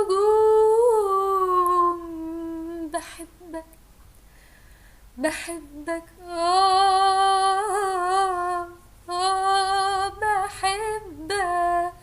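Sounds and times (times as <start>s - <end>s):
woman singing unaccompanied: 0.0s - 3.8s, 5.2s - 12.0s.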